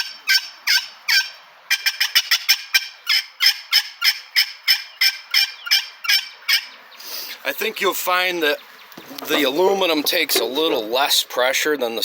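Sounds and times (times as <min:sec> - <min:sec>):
turkey pot call yelps: 0:00.0 - 0:07.4, 0:09.0 - 0:09.8.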